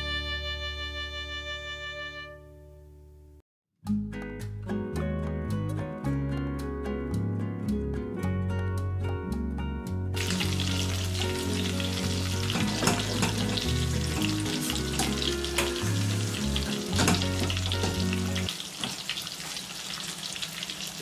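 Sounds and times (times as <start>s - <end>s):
music with bass line: 0.0s - 18.5s
steak frying in hot oil: 10.2s - 21.0s.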